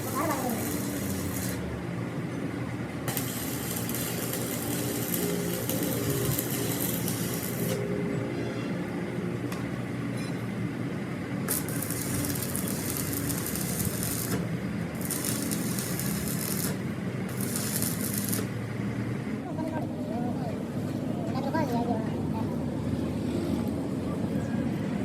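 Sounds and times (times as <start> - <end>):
harsh high hissing: 0.0 - 1.7
low machine hum: 0.0 - 25.0.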